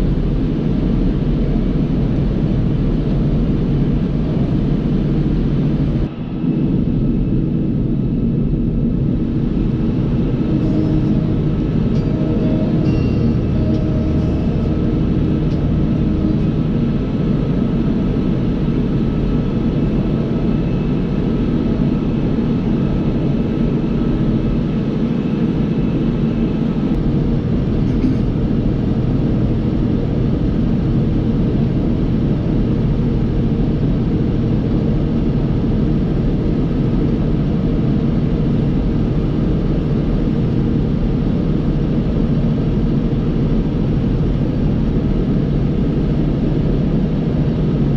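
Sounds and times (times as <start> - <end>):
tractor diesel engine running: 8.5 - 24.6.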